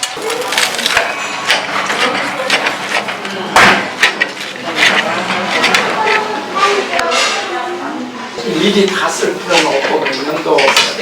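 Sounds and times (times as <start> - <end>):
dishes and cutlery clattering: 0.0 - 6.3, 9.5 - 11.0
background chatter: 0.0 - 11.0.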